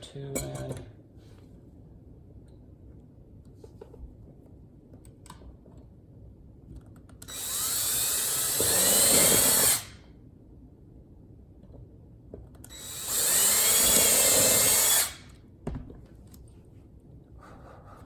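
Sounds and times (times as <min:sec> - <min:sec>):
cordless drill driving a screw: 0:07.2 - 0:10.0, 0:12.7 - 0:15.3.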